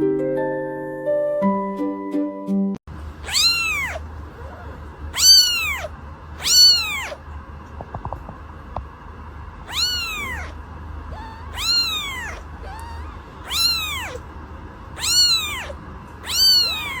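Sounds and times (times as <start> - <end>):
cat meowing: 3.2 - 7.2, 9.6 - 14.3, 15.0 - 17.0.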